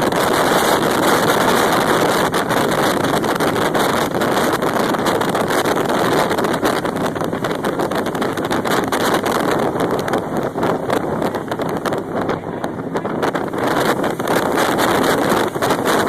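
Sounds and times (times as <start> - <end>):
jet boat engine at speed: 0.0 - 16.0
wind buffeting microphone: 0.0 - 16.0.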